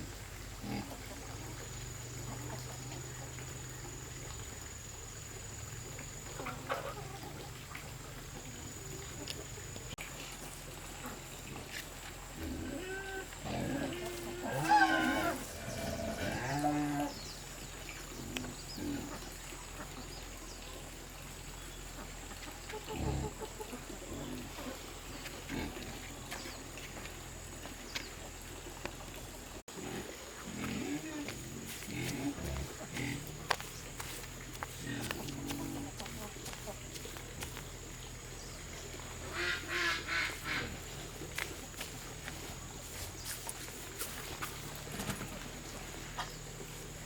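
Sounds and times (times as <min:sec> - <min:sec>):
farm animal calling: 0:06.2 - 0:07.6, 0:12.4 - 0:17.2, 0:39.3 - 0:41.0.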